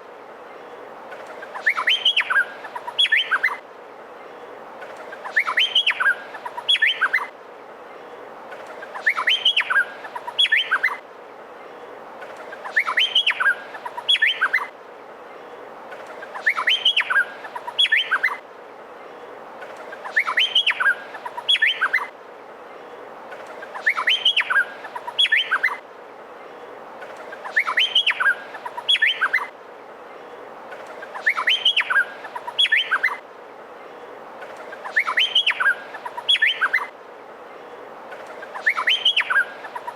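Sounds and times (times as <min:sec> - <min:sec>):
steady hiss: 0:00.0 - 0:39.9
bird singing whistled notes: 0:01.6 - 0:03.6, 0:05.2 - 0:07.3, 0:09.0 - 0:11.0, 0:12.6 - 0:14.7, 0:16.4 - 0:18.4, 0:20.0 - 0:22.1, 0:23.8 - 0:25.8, 0:27.4 - 0:29.5, 0:31.1 - 0:33.2, 0:34.8 - 0:36.9, 0:38.5 - 0:39.8.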